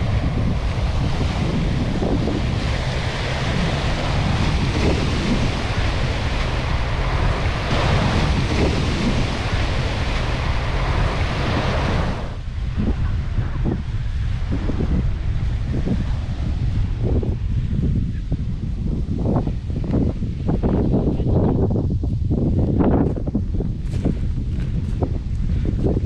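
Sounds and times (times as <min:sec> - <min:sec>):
surf washing onto beach: 0:00.0 - 0:20.6
wind buffeting microphone: 0:00.0 - 0:26.0.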